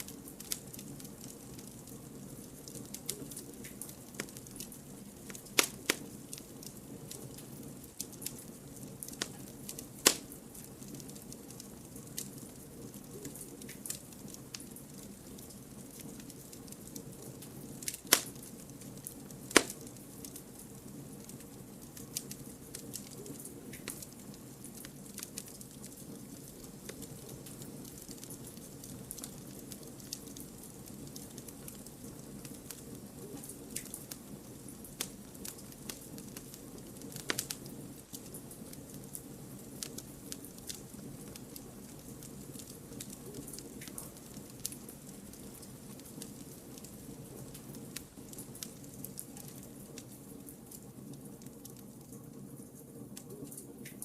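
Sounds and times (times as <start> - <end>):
campfire crackling and popping: 0.0 - 54.0
loud wood snaps: 5.3 - 6.0, 10.0 - 10.4, 17.9 - 18.4, 19.5 - 19.8.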